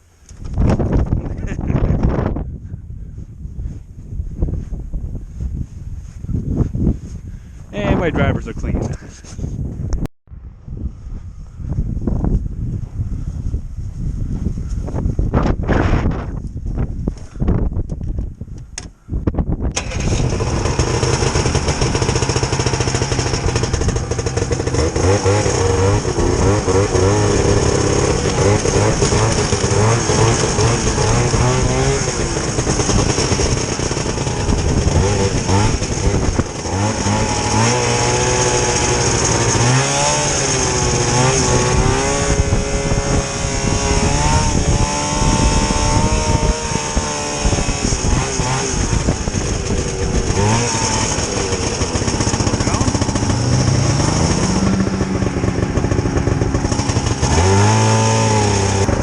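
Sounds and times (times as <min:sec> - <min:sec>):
snowmobile engine running: 0:19.8 - 0:59.0.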